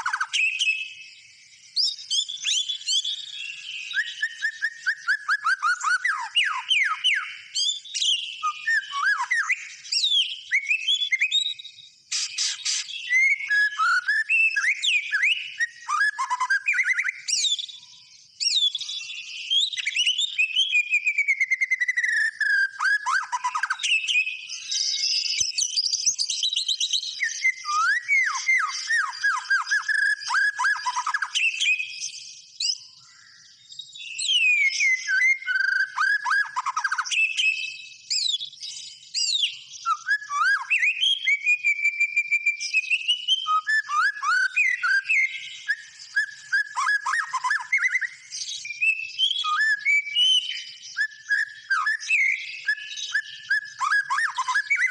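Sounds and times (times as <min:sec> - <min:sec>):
songbird whistling and chattering: 0:00.0 - 0:54.9.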